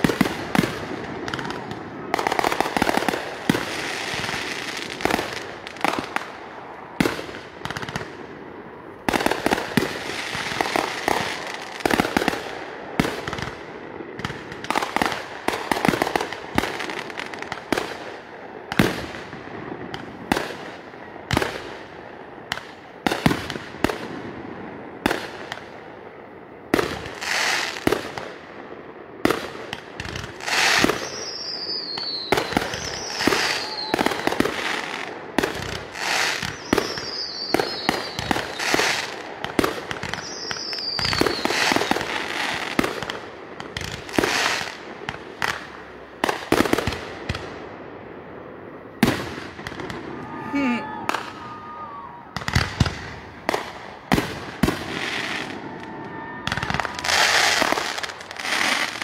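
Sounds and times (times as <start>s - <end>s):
falling whistles: 30.8s - 34.4s, 36.4s - 38.8s, 40.2s - 41.9s.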